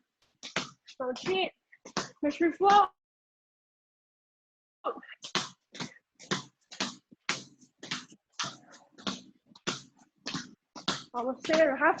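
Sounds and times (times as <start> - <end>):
basketball dribbling on floor: 0.2 - 2.9, 5.2 - 12.0.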